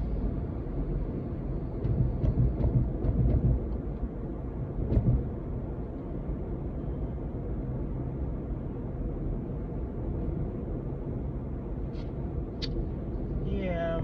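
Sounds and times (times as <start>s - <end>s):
car cabin road and engine rumble: 0.0s - 14.0s.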